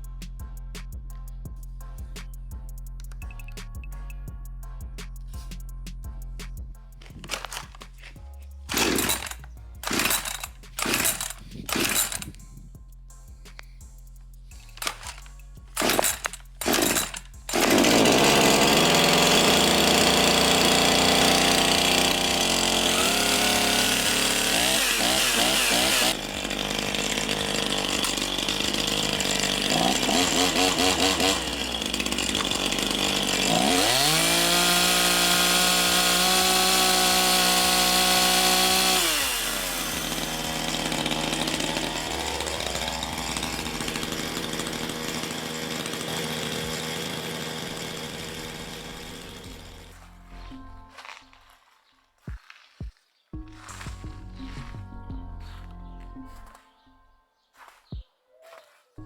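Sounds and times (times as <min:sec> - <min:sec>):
chainsaw engine revving: 0:07.0 - 0:12.4, 0:14.8 - 0:50.1.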